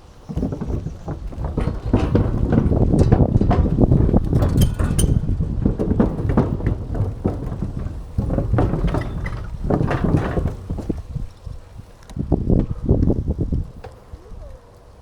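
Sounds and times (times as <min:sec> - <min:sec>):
bicycle rattling and knocking: 0:00.0 - 0:14.0
wind rumble on microphone: 0:00.0 - 0:15.0.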